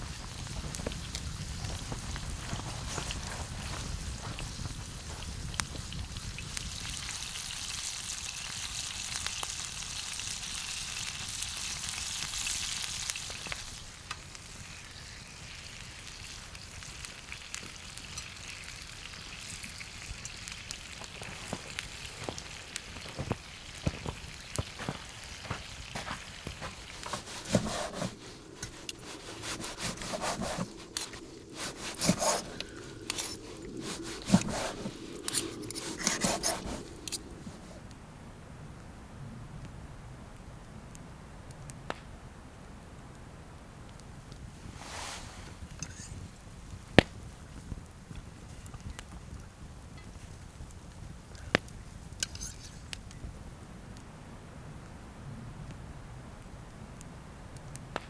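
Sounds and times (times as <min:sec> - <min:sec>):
food sizzling in a pan: 0:02.8 - 0:37.2
utensils clinking and scraping: 0:24.8 - 0:37.7.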